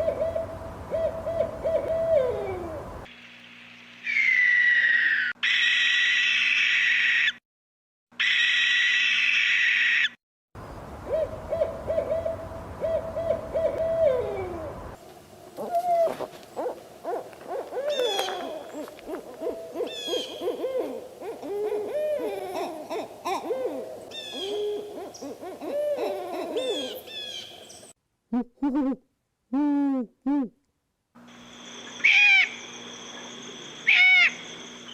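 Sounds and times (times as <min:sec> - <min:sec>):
owls hooting: 0:00.0 - 0:02.9, 0:11.1 - 0:14.8, 0:15.6 - 0:27.6, 0:32.0 - 0:32.6, 0:33.8 - 0:34.5.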